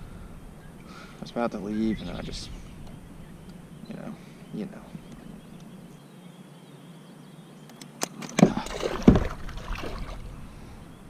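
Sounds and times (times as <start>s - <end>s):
water splashing against kayak: 8.2s - 10.4s
loud thumps: 8.3s - 9.5s.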